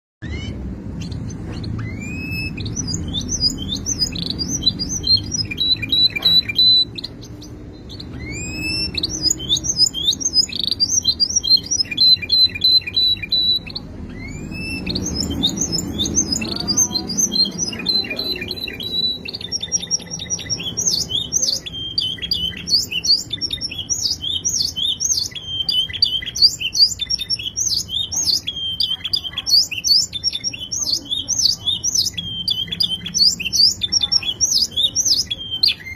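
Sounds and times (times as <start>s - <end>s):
canary singing trills: 0.2s - 35.9s.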